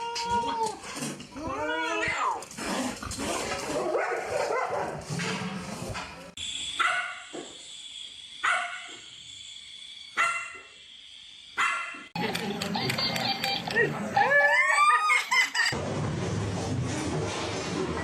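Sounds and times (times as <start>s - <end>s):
dog barking: 3.8s - 5.0s, 6.8s - 7.2s, 8.4s - 9.0s, 10.2s - 10.6s, 11.6s - 12.1s.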